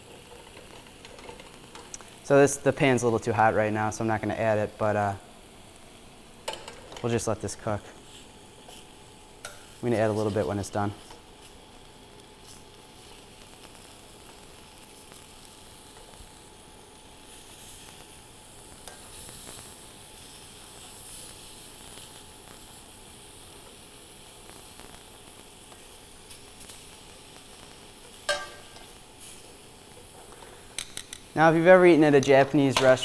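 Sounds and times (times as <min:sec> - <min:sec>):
tofu sizzling in a pan: 0:00.0 - 0:03.0, 0:04.2 - 0:33.0
tongs clinking on pan: 0:28.3 - 0:29.0.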